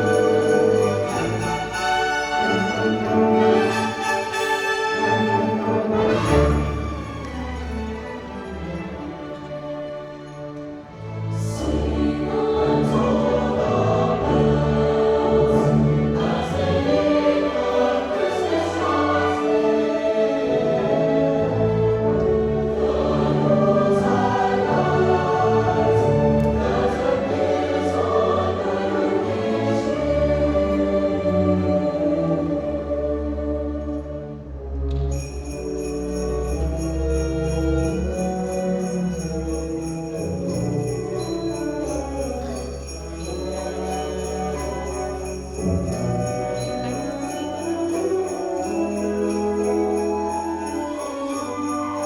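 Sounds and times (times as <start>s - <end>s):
sleigh bells shaking: 0.0s - 10.5s, 35.1s - 52.0s
orchestra sustained strings: 0.0s - 52.0s.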